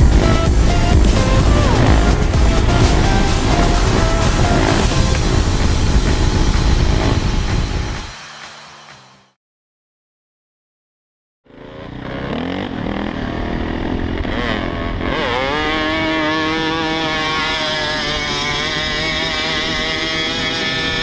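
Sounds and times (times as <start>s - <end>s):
wind noise: 0.0s - 8.2s
dirt bike engine revving: 0.0s - 9.1s, 11.5s - 21.0s.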